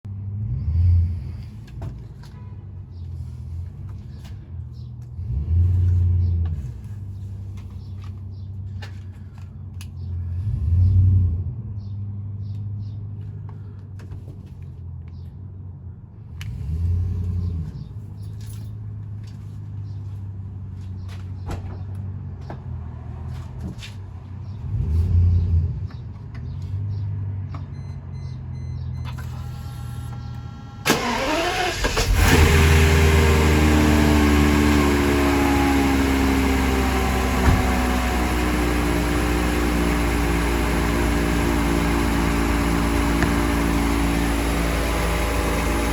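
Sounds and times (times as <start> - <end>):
car engine idling: 29.2 - 45.9.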